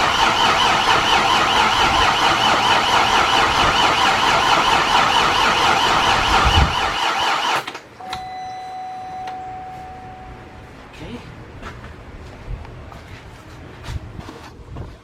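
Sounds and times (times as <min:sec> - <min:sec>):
car alarm siren warbling: 0:00.0 - 0:08.3
steady electronic beep tone: 0:08.0 - 0:10.6.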